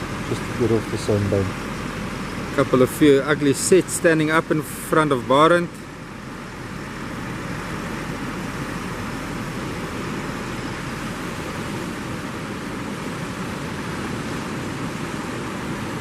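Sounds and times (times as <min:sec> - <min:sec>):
surf breaking on beach: 0:06.6 - 0:16.0.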